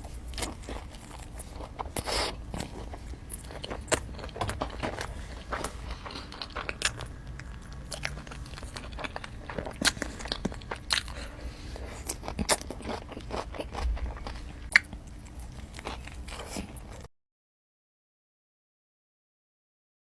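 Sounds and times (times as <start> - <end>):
crunchy food chewing: 0.0 - 17.1.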